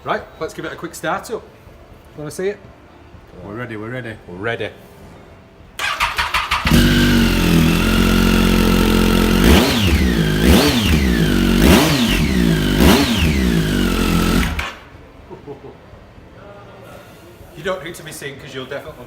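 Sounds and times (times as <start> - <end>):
motorcycle engine idling and revving: 5.8 - 14.9
motorcycle starter cranking: 5.8 - 14.9.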